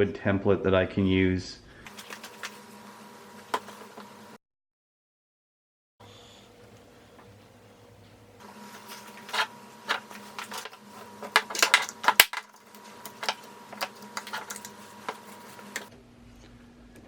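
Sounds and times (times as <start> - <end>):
faint steady hum: 6.0 - 17.0.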